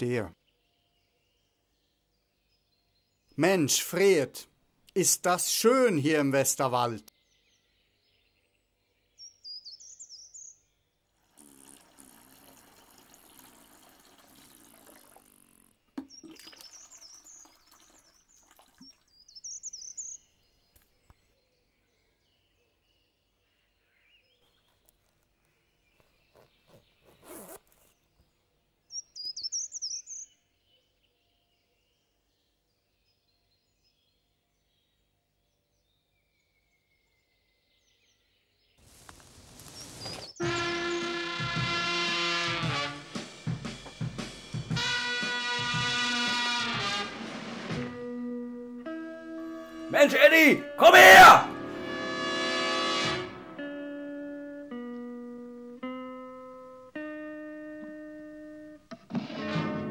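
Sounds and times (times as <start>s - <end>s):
small birds chirping: 0.0s - 41.1s
steady hissing noise: 38.8s - 40.3s.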